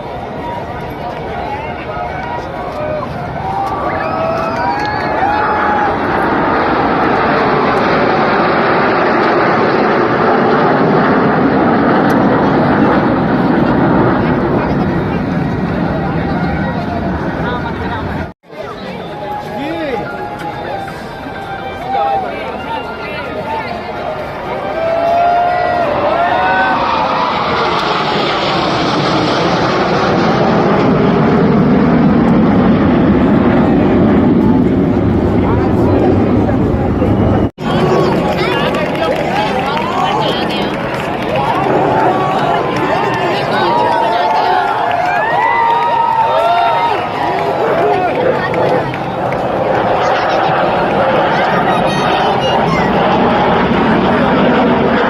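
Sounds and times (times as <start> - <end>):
aircraft engines rushing: 0.0 - 55.0.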